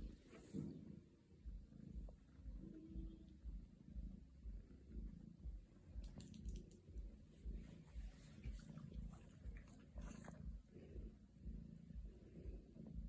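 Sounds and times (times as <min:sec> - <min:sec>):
cat purring: 0:00.0 - 0:13.0
faint rustling clicks: 0:06.0 - 0:07.0.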